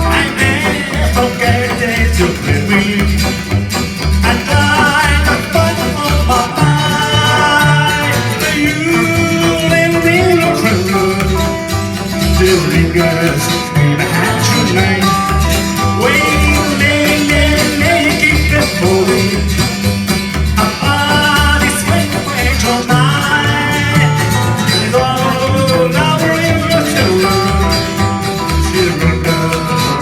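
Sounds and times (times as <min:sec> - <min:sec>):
bass guitar: 0:00.0 - 0:30.0
drums on a steady beat: 0:00.0 - 0:30.0
electric guitar: 0:00.0 - 0:30.0
person singing: 0:00.0 - 0:30.0.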